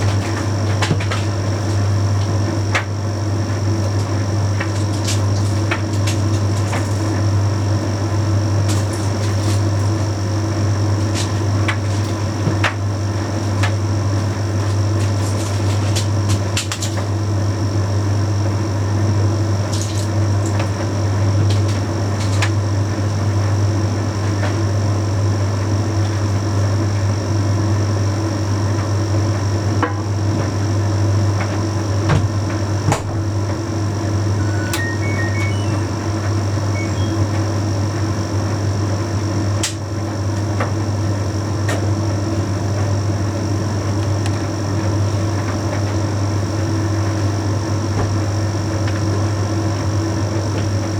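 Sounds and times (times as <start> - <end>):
tumble dryer humming: 30.4 - 41.4.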